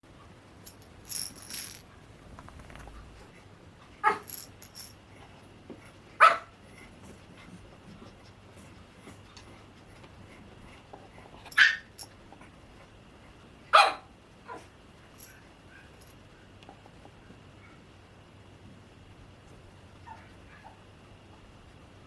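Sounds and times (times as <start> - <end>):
puppy barking: 4.0 - 4.3, 6.2 - 6.5, 11.6 - 11.9, 13.7 - 14.7
puppy yipping: 11.6 - 11.9.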